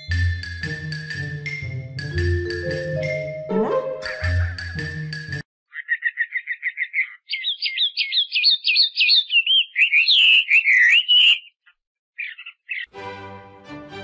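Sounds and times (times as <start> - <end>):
songbird singing: 5.7 - 12.9.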